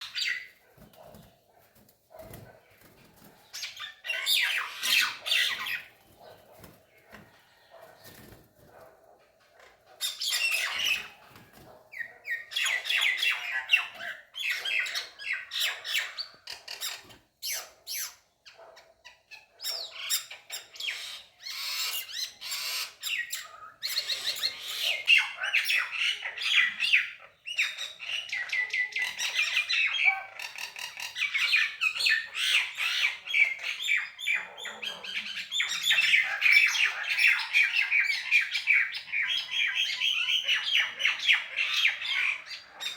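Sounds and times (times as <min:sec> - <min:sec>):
birds squawking harshly: 0:03.4 - 0:06.2, 0:10.0 - 0:18.1.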